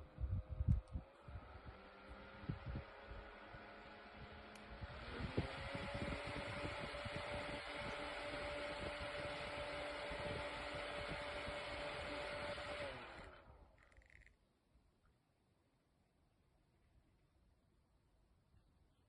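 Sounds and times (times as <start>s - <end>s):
desk fan motor hum: 0.0s - 14.2s.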